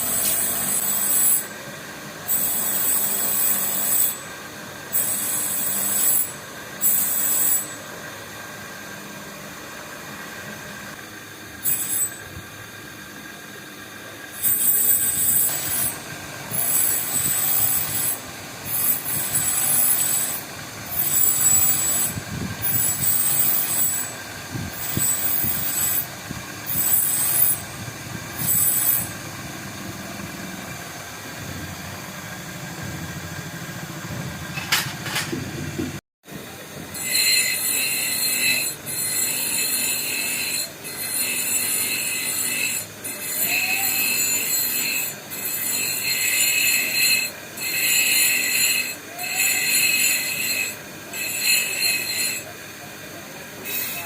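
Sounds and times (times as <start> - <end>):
hand tool squealing on metal: 0.0 - 1.6, 2.3 - 4.3, 4.9 - 7.9, 11.6 - 12.3, 14.4 - 24.2, 24.8 - 27.8, 28.4 - 29.2, 36.9 - 52.6, 53.6 - 54.0.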